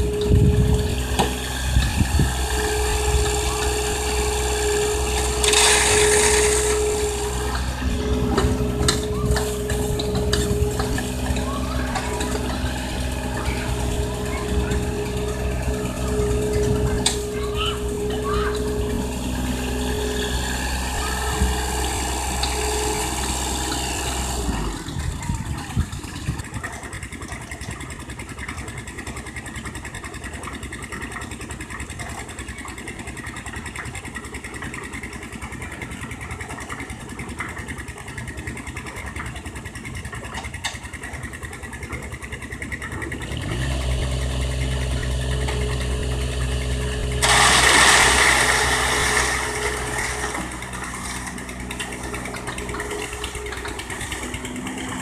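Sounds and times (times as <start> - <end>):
deeper engine revving: 0.0 - 26.6, 42.8 - 55.0
construction machine engine running: 0.0 - 55.0.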